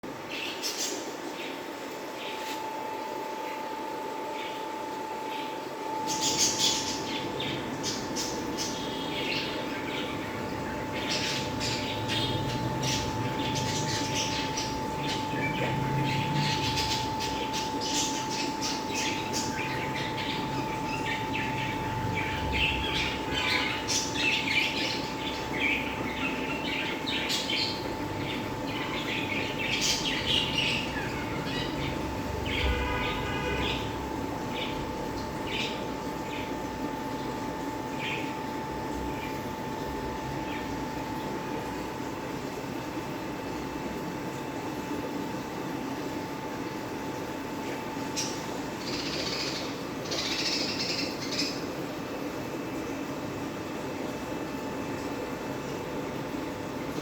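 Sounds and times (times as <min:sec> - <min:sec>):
steady high hum: 0:00.0 - 0:57.0
birds squawking and chirping: 0:05.3 - 0:36.6, 0:48.1 - 0:51.7.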